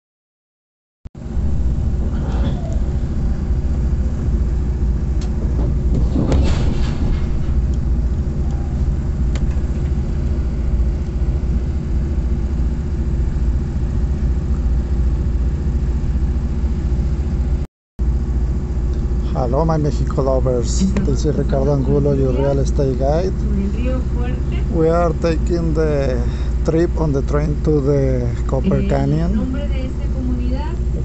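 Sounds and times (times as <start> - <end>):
rattling surge: 1.2 - 12.2
train interior rumble: 1.2 - 17.6, 18.2 - 31.0.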